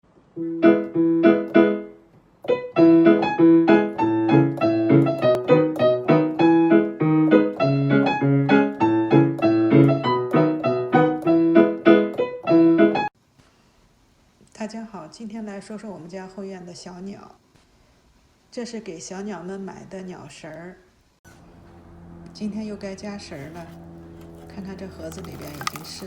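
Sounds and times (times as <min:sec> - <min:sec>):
piano music: 0:00.4 - 0:13.1.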